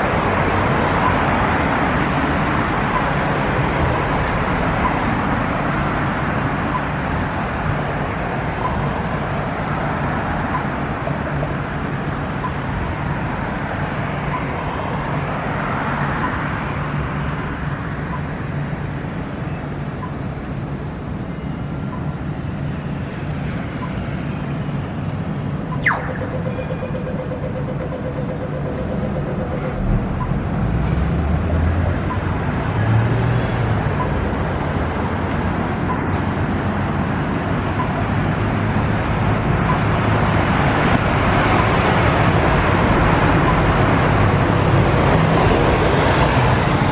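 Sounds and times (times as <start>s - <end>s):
road traffic noise: 0.0s - 46.9s.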